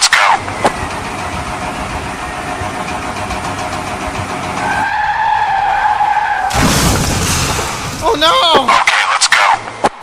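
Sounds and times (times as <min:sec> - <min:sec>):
car engine running: 0:00.0 - 0:09.8
tyres squealing skid: 0:04.4 - 0:09.6.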